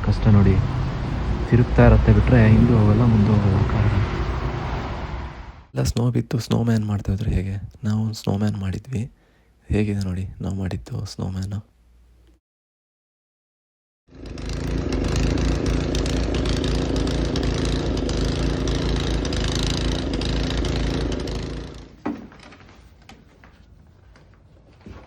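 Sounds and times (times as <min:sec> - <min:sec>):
small petrol engine running: 0:14.1 - 0:22.6.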